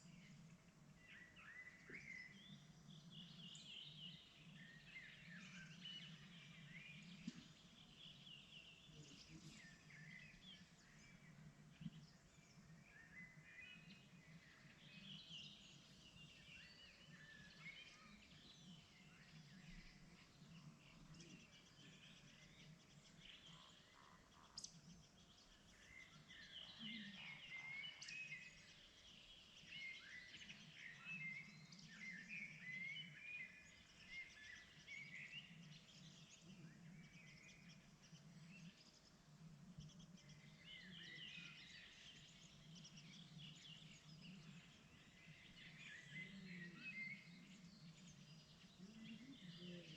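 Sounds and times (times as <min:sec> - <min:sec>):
birds chirping and trilling: 0:00.0 - 0:49.9.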